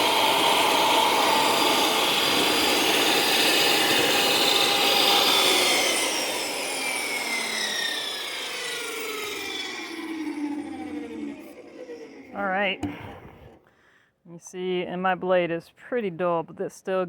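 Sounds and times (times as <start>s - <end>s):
saw blade winding down whine: 0.0s - 13.7s
table saw cutting wood: 0.0s - 13.7s
person talking: 12.3s - 13.2s, 14.3s - 17.0s.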